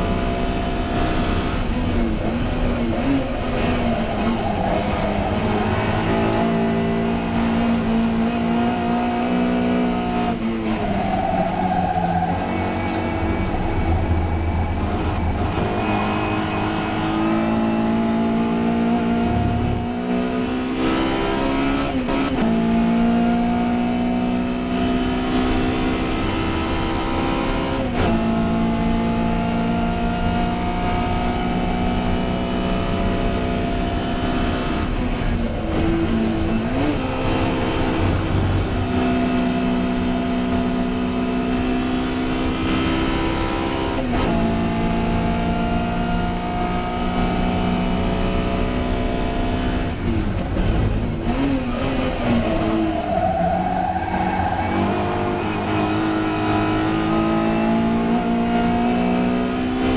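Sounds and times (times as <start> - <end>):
race car engine running hard: 0.0 - 59.9.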